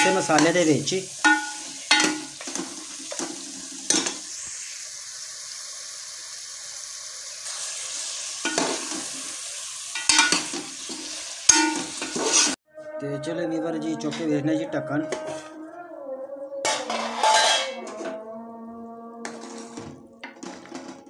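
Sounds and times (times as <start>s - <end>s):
chicken sizzling in a pot: 0.0s - 12.6s
metal ladle scraping a pot: 1.2s - 4.2s, 10.0s - 10.7s, 11.5s - 12.6s, 15.0s - 15.5s, 16.6s - 18.2s, 19.2s - 21.0s.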